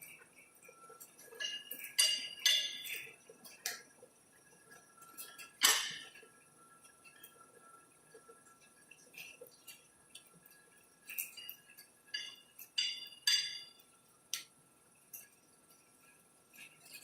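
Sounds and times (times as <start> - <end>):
metallic clinks and knocks: 0.0 - 3.8, 11.0 - 14.0.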